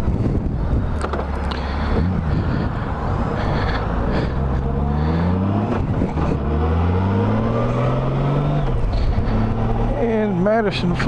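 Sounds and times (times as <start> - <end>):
wind noise on microphone: 0.0 - 4.7, 5.5 - 6.5
motorcycle engine accelerating: 0.4 - 10.3.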